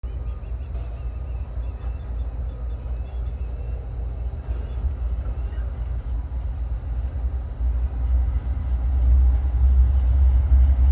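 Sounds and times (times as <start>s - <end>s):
birds chirping: 0.0s - 7.1s
distant freight train rumble: 0.0s - 10.9s
steady high buzz: 0.0s - 10.9s.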